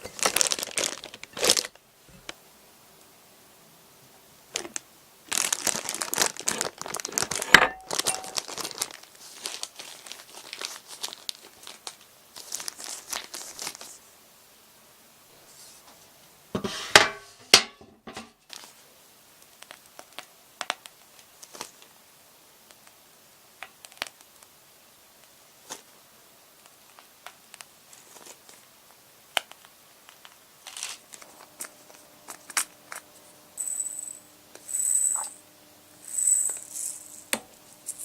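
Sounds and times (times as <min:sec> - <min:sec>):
crinkling crackly burst: 0:00.0 - 0:02.4, 0:04.5 - 0:14.1, 0:18.5 - 0:22.0, 0:22.6 - 0:33.6.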